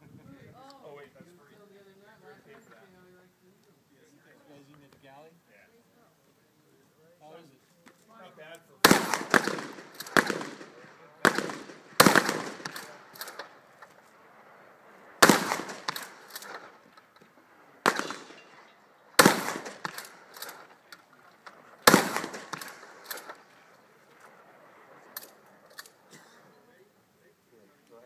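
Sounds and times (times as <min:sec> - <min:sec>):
shotgun shots with echo: 0:08.8 - 0:13.6, 0:15.2 - 0:16.9, 0:17.8 - 0:20.8, 0:21.5 - 0:23.5.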